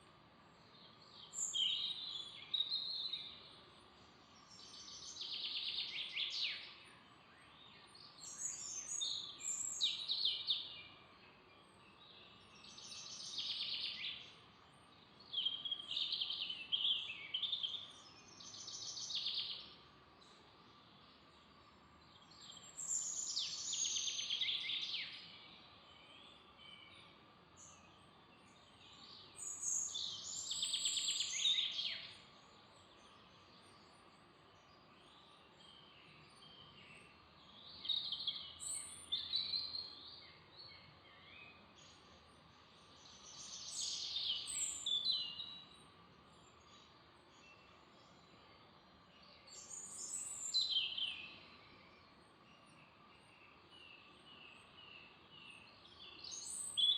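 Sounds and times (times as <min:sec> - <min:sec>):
faint background hiss: 0:00.0 - 0:56.9
songbird singing: 0:00.0 - 0:56.9.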